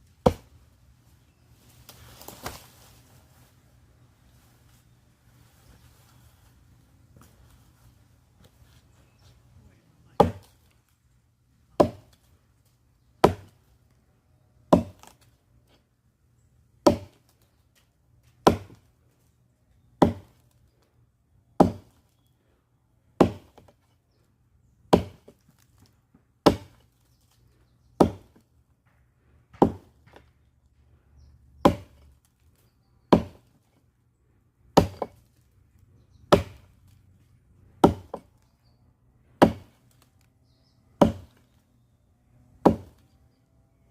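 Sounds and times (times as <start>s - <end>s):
blade chopping firewood: 0.0s - 0.6s, 10.1s - 10.9s, 11.7s - 14.0s, 14.7s - 15.9s, 16.8s - 19.0s, 20.0s - 20.9s, 21.6s - 22.3s, 23.1s - 24.1s, 24.8s - 30.5s, 31.2s - 33.9s, 34.6s - 37.0s, 37.6s - 41.6s, 42.6s - 43.1s.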